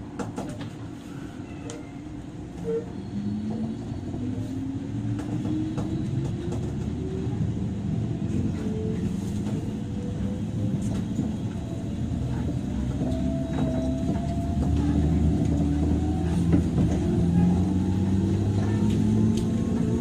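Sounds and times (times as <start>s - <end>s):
wheels rumbling on rails: 0.0s - 20.0s.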